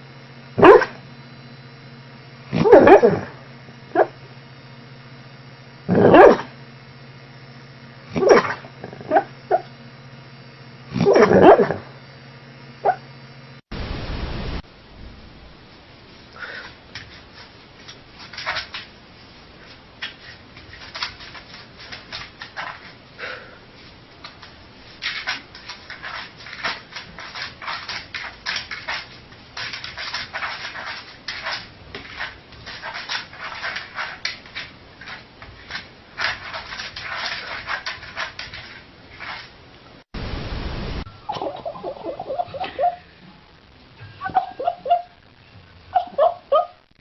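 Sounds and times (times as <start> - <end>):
dog whimpering and yipping: 41.3 - 43.0, 44.2 - 45.2, 45.9 - 46.8.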